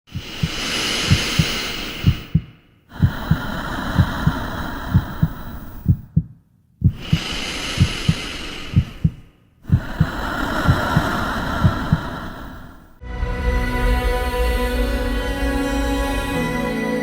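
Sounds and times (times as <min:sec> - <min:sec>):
heartbeat thumps: 0:00.1 - 0:12.3
steady hissing drone: 0:00.2 - 0:02.3.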